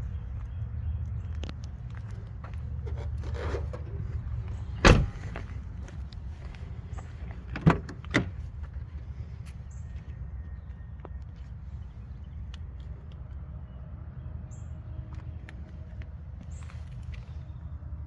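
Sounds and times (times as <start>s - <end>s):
steady low rumble: 0.0s - 10.4s
door clunks: 4.8s - 5.6s, 7.5s - 8.4s.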